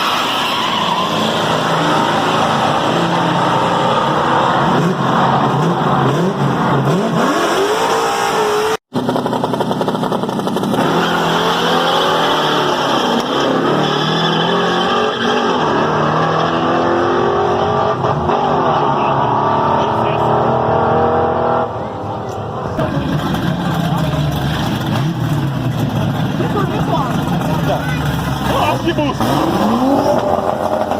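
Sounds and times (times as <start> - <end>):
car engines revving: 0.0 - 30.9.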